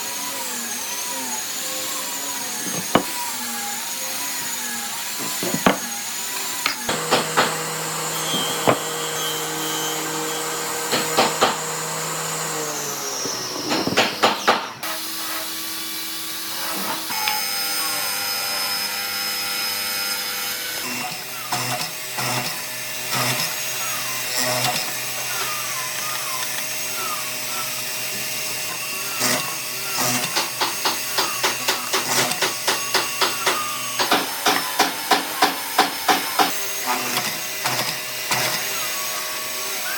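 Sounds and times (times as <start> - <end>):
power tool motor whine: 0.0 - 39.9
knocks: 2.6 - 3.2, 5.2 - 5.9, 8.3 - 9.0.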